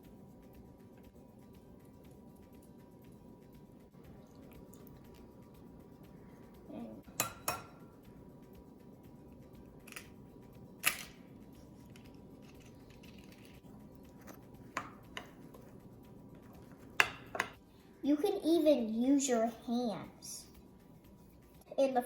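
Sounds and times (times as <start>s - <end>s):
spoon knocking against a bowl: 7.1s - 7.8s, 16.9s - 17.6s.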